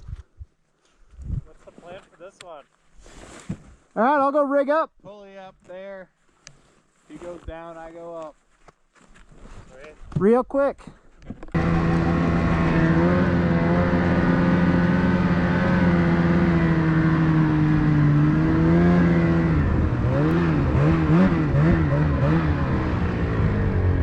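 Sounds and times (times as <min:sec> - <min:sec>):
snowmobile engine revving: 0:11.6 - 0:24.0.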